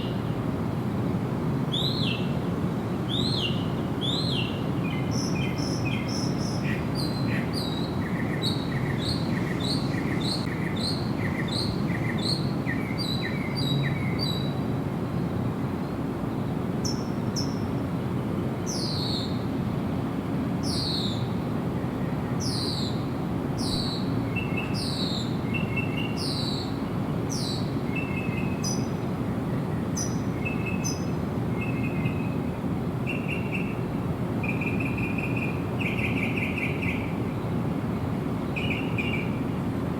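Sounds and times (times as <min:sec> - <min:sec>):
low background noise: 0:00.0 - 0:39.9
birds singing: 0:01.7 - 0:02.4, 0:03.1 - 0:14.6, 0:23.6 - 0:33.8, 0:34.4 - 0:37.2, 0:38.5 - 0:39.4.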